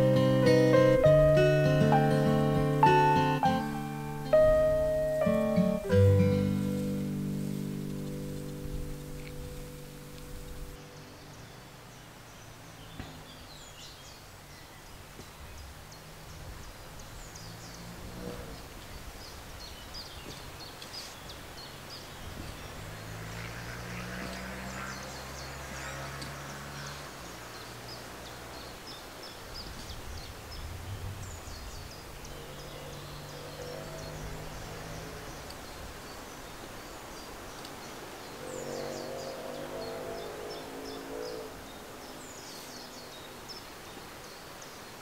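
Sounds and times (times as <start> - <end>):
birds chirping and singing: 0.0 - 14.7, 28.6 - 44.9
low steady drone: 38.2 - 42.5.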